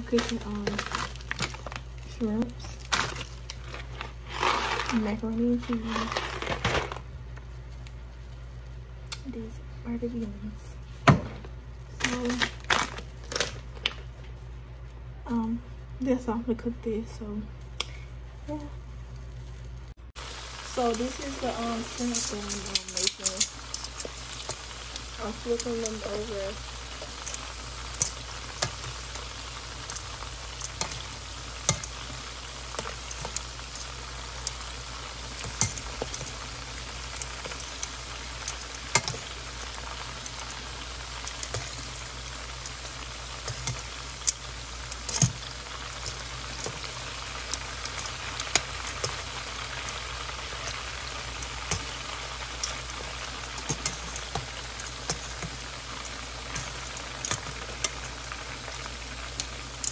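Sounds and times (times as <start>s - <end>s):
shrimp sizzling in hot oil: 0.0s - 6.7s, 20.1s - 59.9s.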